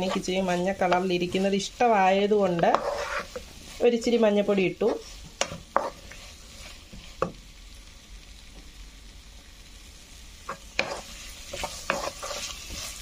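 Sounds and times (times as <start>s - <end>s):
wooden spatula scraping a pan: 0.0s - 7.4s, 10.5s - 13.0s
vegetables sizzling in hot oil: 0.0s - 13.0s.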